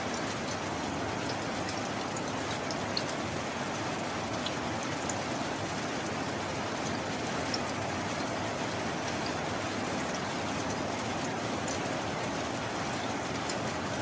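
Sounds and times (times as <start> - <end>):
raindrop ticks: 0.0 - 14.0
steady rain: 0.0 - 14.0.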